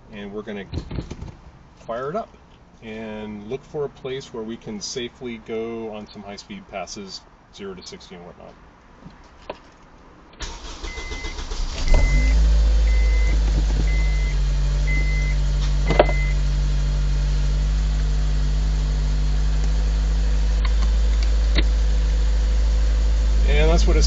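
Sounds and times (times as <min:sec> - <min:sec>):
engine starter cranking: 0:10.4 - 0:14.2
car engine idling: 0:10.4 - 0:24.0
electronic beep: 0:11.9 - 0:16.4.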